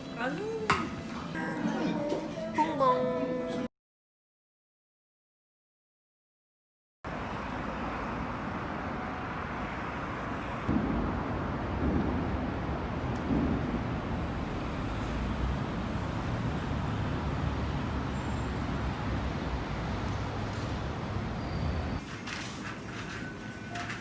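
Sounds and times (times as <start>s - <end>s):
traffic rumble: 7.1s - 23.7s.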